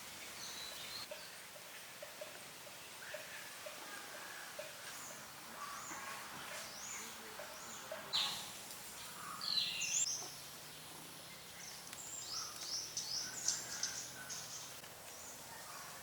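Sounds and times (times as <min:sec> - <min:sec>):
faint outdoor background: 0:00.0 - 0:16.0
birds chirping and whistling: 0:07.6 - 0:10.5, 0:11.3 - 0:14.8.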